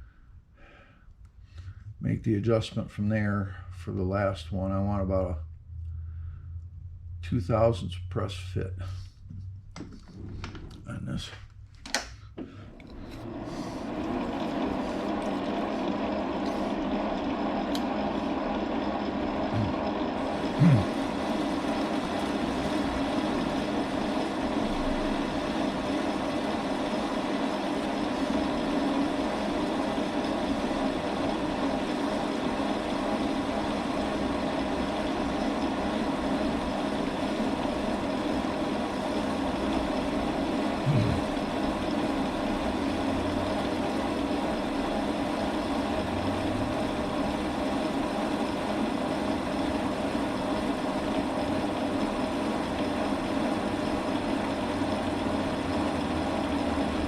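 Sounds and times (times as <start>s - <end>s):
metal lathe cutting: 12.9s - 57.0s.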